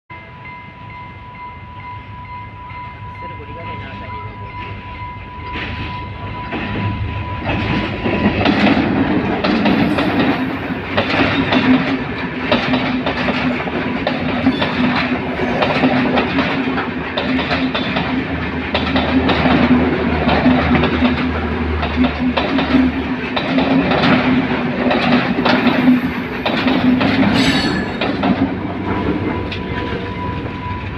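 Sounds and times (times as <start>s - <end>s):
train drone: 0.1s - 30.9s
train wheels clacking over rail joints: 5.4s - 30.6s
high-pitched train squeal: 9.6s - 11.6s, 14.3s - 16.1s, 25.6s - 30.9s.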